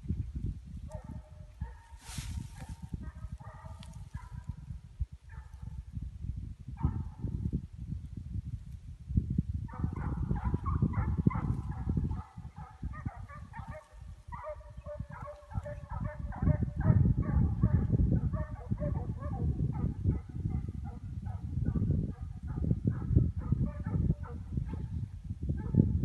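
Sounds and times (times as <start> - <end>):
hounds baying in high yelps: 2.6 - 4.5, 9.7 - 21.5, 22.2 - 24.5.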